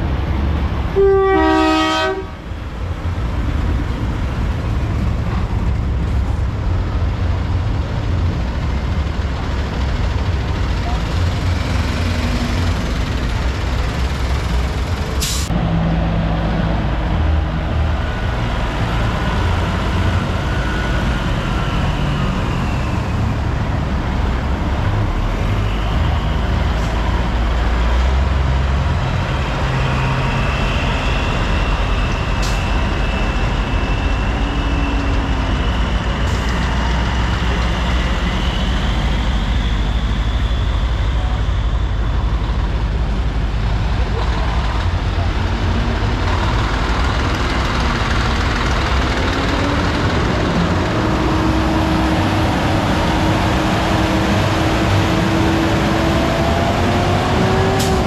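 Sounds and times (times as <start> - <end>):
diesel truck engine running: 31.4 - 58.0.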